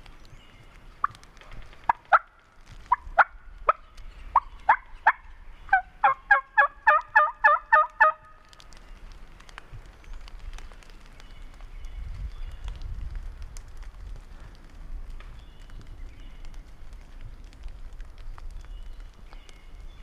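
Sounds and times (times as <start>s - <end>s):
turkey rattling call: 0.1s - 9.0s
turkey yelping: 2.9s - 3.8s, 4.4s - 8.2s.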